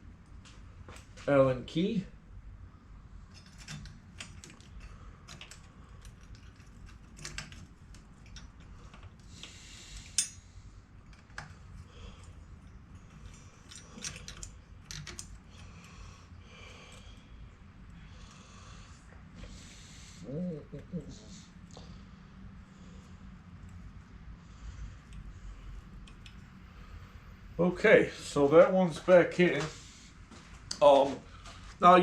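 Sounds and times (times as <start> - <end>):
metallic clicks of allen key: 13.0 - 15.7.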